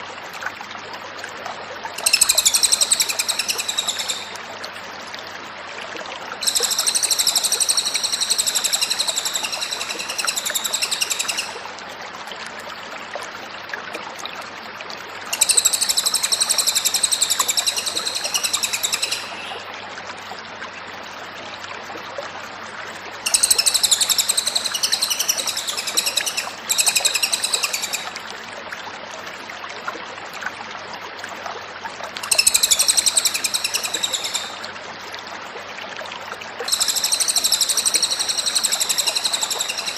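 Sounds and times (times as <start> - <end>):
bird trilling song: 2.0 - 4.4, 6.4 - 11.6, 15.3 - 19.6, 23.3 - 28.2, 32.2 - 34.6, 36.7 - 39.9.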